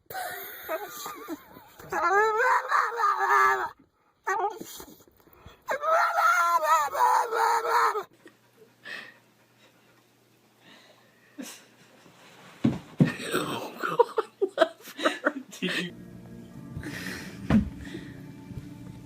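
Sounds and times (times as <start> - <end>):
animal howling: 1.8 - 4.4, 5.7 - 8.1.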